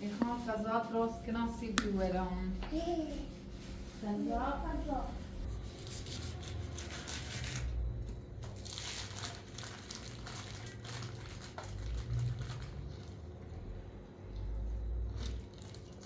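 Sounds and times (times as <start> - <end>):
crinkling and rustling: 6.6 - 13.4.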